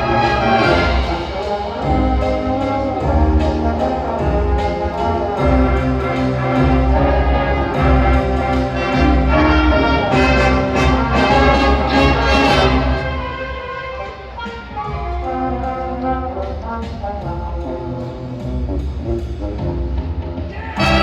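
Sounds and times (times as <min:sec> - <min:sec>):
brass and woodwind ensemble playing: 0:00.0 - 0:20.0, 0:20.6 - 0:21.0.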